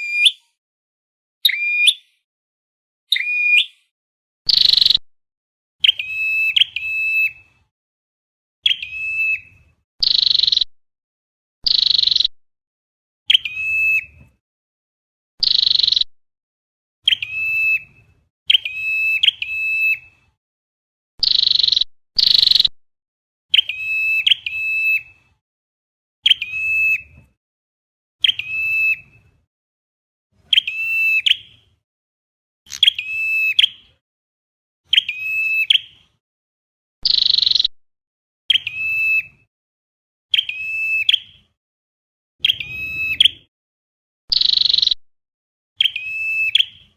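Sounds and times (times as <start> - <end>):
buzzy bird notes: 42.4 - 43.5
sharp bird chip notes: 42.4 - 43.5.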